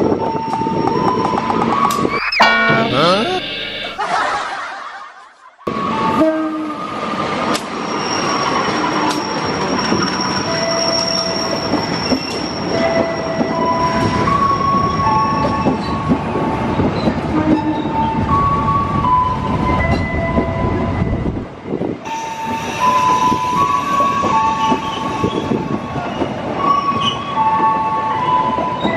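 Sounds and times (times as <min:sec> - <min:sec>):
train wheels rumbling on rail: 0:06.8 - 0:28.9.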